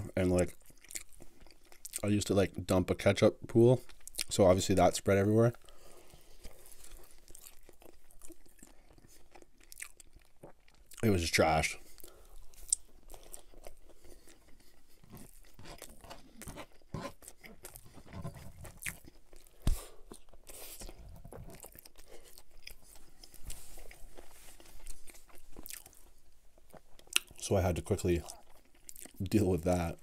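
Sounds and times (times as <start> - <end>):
wet chewing mouth clicks: 27.0 - 27.4.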